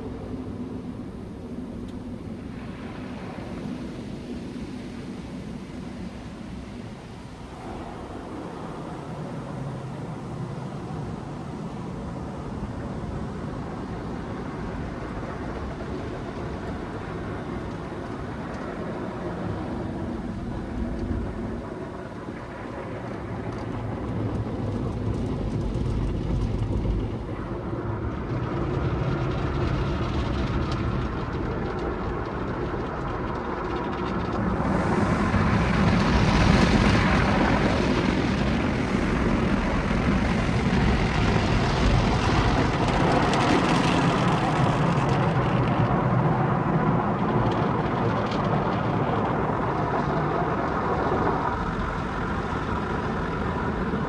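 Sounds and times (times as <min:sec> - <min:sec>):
car wash machine noise: 0:34.5 - 0:54.0.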